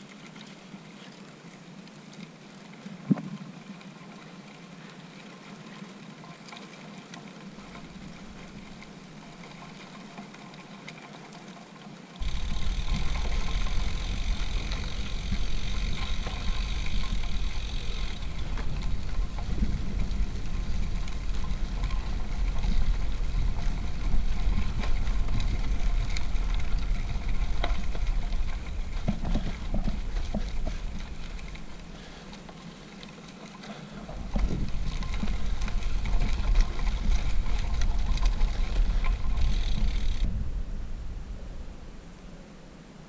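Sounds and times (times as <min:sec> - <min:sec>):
bicycle and stones rattling: 0:00.0 - 0:42.2
high steady buzz: 0:12.2 - 0:18.6
wind rumbling on microphone: 0:12.2 - 0:32.6, 0:33.9 - 0:43.0.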